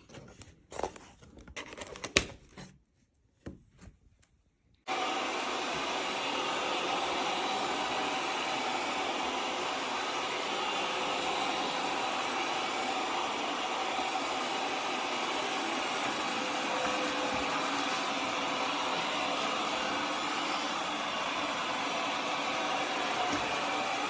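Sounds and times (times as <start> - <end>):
suction motor loud steady rush: 4.9 - 24.0.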